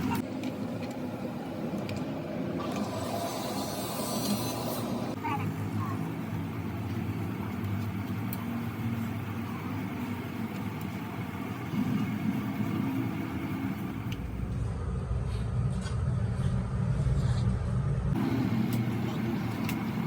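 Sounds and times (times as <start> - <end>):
engine idling: 18.2 - 20.0.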